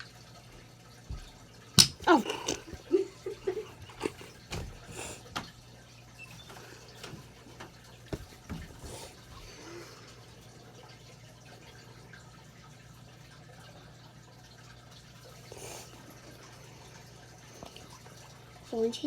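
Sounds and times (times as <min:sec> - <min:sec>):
objects knocking and clicking: 0:01.1 - 0:02.9.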